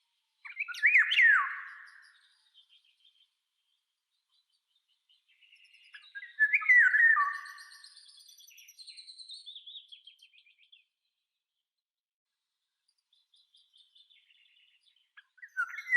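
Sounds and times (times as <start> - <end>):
songbirds warbling: 0.4 - 10.8, 13.1 - 15.9
high bird chirps: 5.2 - 10.7, 13.4 - 15.9.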